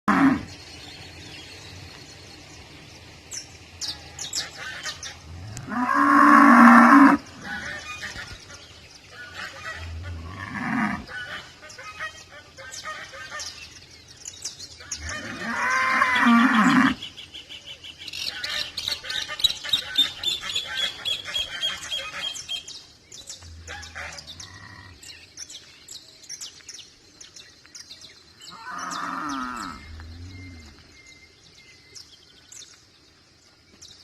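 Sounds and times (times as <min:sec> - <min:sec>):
cow mooing: 0:05.4 - 0:07.2, 0:09.9 - 0:11.1.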